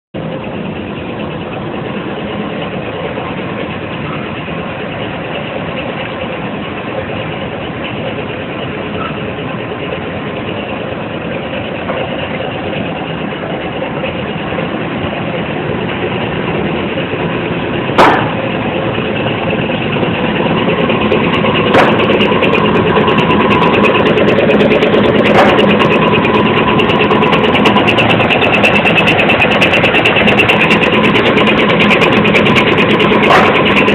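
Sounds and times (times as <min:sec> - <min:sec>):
machinery mechanical drone: 0:00.2 - 0:33.9
sharp knocks: 0:18.0 - 0:18.5, 0:21.6 - 0:22.3, 0:25.3 - 0:25.8, 0:33.2 - 0:33.9.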